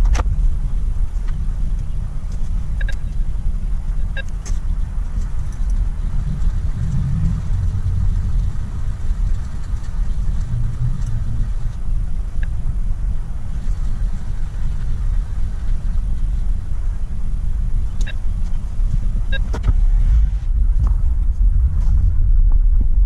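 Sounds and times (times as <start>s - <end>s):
car engine and road noise: 0.0s - 23.0s
light ticks: 1.1s - 3.2s.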